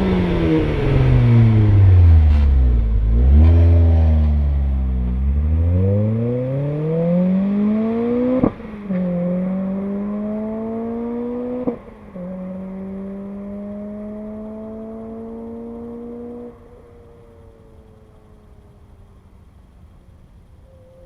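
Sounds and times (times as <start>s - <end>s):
car engine accelerating: 0.0s - 20.0s
gear change crack: 2.1s - 4.4s.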